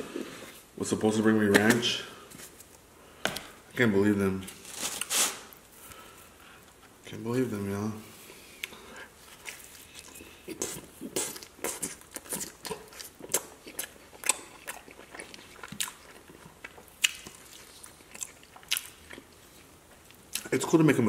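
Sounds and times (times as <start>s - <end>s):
chewing pizza crust: 8.6s - 20.6s.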